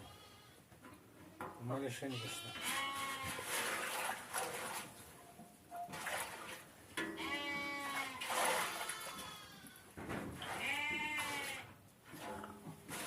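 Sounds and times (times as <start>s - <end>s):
sheep or goat bleating: 0.0s - 0.6s, 2.1s - 3.4s, 7.0s - 9.9s, 10.5s - 11.7s.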